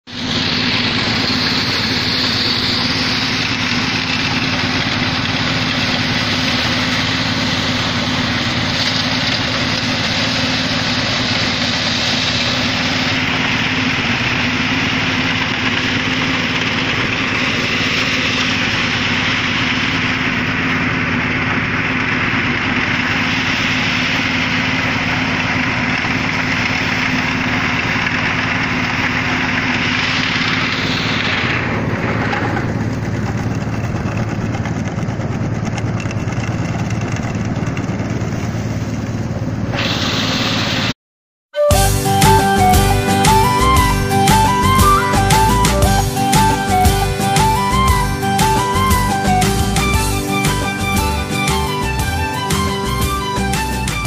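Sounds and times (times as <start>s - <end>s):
harvesting machine engine running: 0.0s - 40.9s, 41.7s - 54.0s
mechanical hiss: 39.8s - 40.9s.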